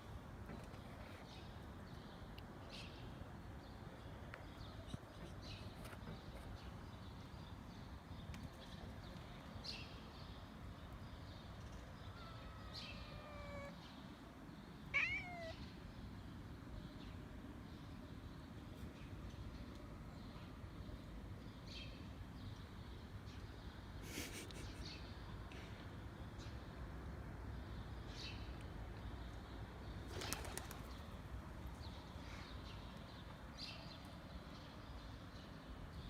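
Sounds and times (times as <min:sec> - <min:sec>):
kitten meowing: 0:12.1 - 0:13.8, 0:14.9 - 0:15.6.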